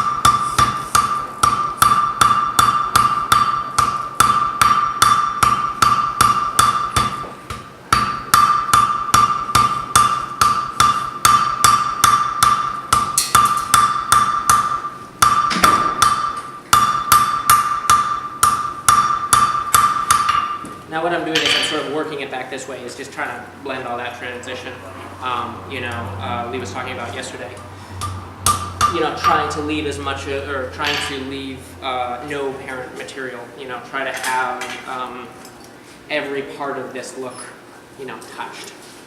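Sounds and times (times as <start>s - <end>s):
hammer forging iron on anvil: 0.0s - 21.9s, 27.9s - 29.7s, 30.8s - 31.3s.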